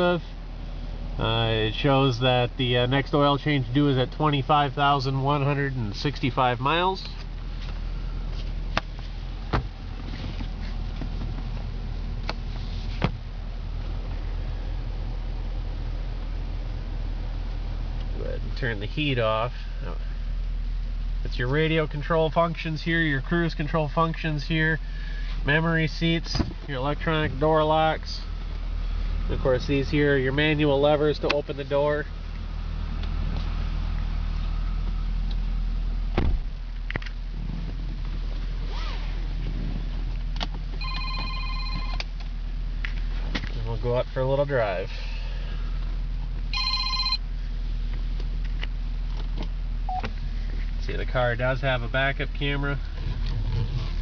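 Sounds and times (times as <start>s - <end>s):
car engine idling: 0.0s - 54.0s
low cabin hum: 0.0s - 54.0s
loud thump: 36.1s - 36.6s.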